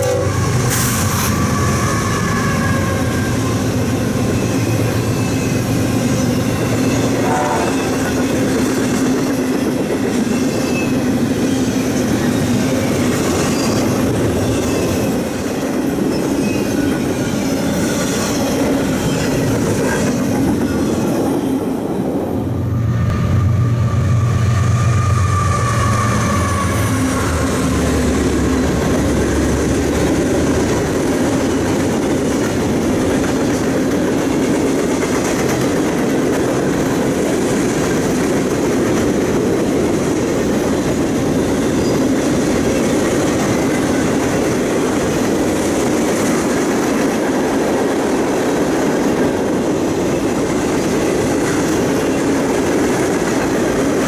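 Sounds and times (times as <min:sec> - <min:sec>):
rail cars rolling on track: 0:00.0 - 0:54.0
locomotive rumble: 0:10.9 - 0:54.0.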